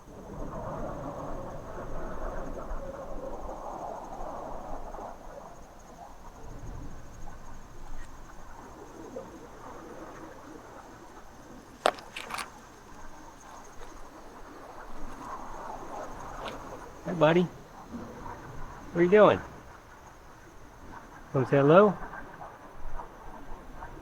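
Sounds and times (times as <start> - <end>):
crickets trilling: 0.0 - 24.0
low background rush: 5.9 - 22.2
sharp clicks: 11.8 - 12.6.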